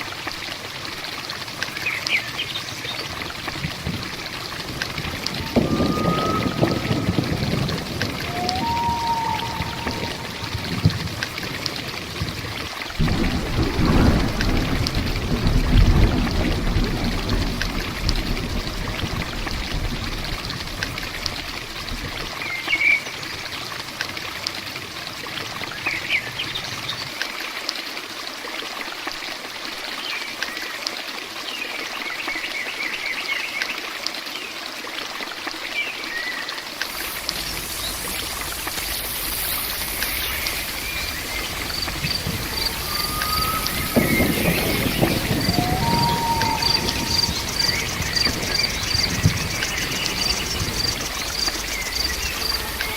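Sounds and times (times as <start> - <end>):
water running and pouring: 0.0 - 32.2, 33.8 - 52.9
heavy rain: 0.0 - 52.9
low thunder rumble: 1.4 - 27.1, 36.8 - 52.9.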